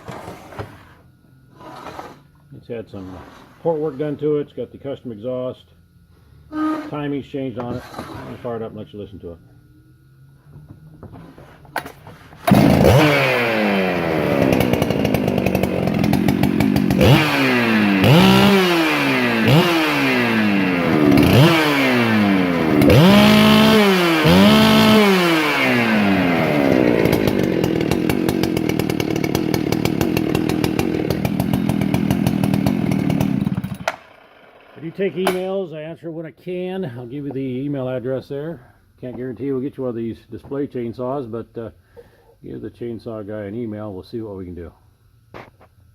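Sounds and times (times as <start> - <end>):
chainsaw starting and revving: 12.4 - 35.4.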